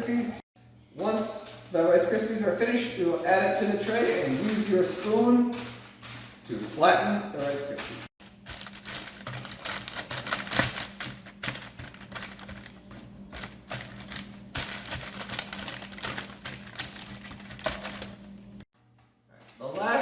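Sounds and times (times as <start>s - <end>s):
crisp cereal crunching: 8.2s - 18.2s.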